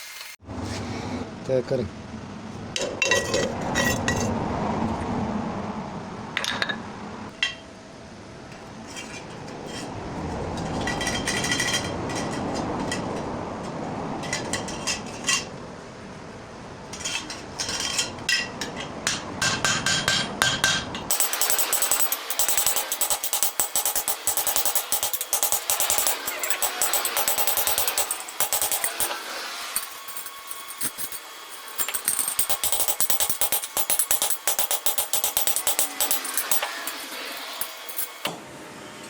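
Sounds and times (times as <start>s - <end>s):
steady background noise: 0.4s - 39.0s
hammer clanking on sheet metal: 17.7s - 38.3s.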